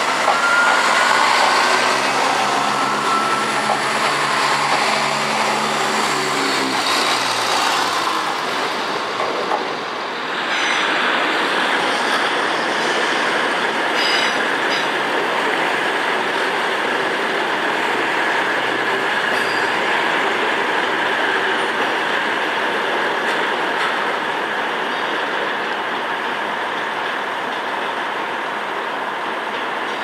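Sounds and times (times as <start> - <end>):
train wheels rumbling on rail: 0.0 - 30.0
faint high wheel squeal: 0.1 - 7.2.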